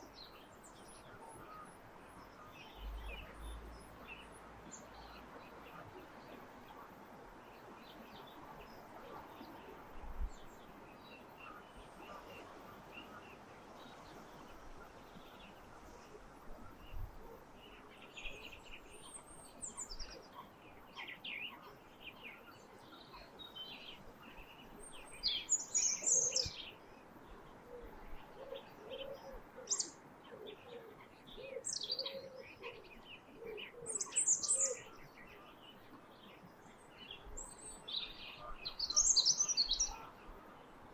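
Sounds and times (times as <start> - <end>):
songbirds chirping and trilling: 0.0 - 40.9
lower repeated bird calls: 17.6 - 26.8, 27.7 - 35.6, 37.2 - 40.4.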